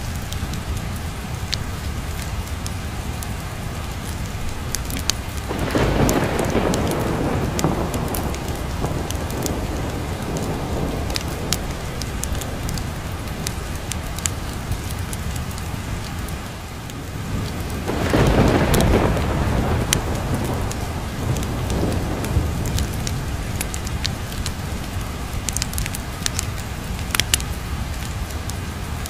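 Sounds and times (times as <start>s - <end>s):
steady rain: 0.0s - 29.0s
thunder rolling: 4.7s - 15.6s, 16.9s - 26.4s.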